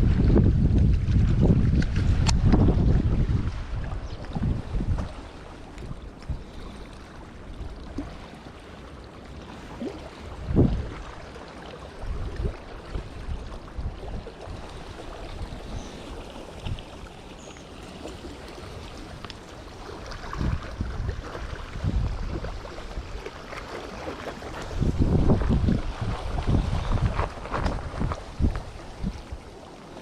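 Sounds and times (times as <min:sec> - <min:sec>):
wind buffeting microphone: 0:00.0 - 0:06.8, 0:10.1 - 0:11.2, 0:12.0 - 0:17.1, 0:18.7 - 0:23.4, 0:24.3 - 0:29.5.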